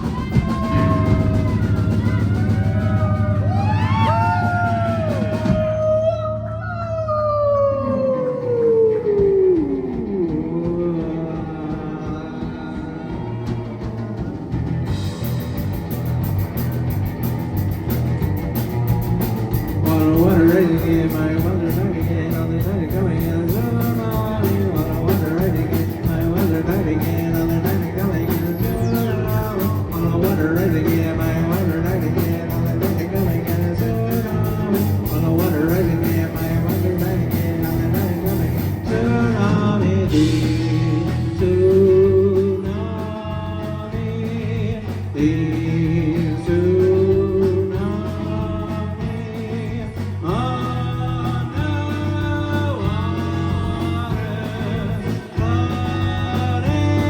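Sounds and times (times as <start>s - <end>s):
rock band playing: 0.0s - 6.5s, 7.9s - 57.0s
wavering lead melody: 0.0s - 8.6s, 14.6s - 41.4s.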